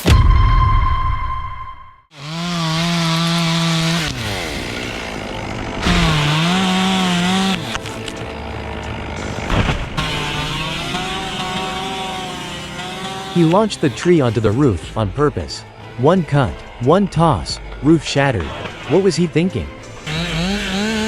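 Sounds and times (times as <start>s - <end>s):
chainsaw revving: 2.1s - 15.2s, 19.8s - 21.0s.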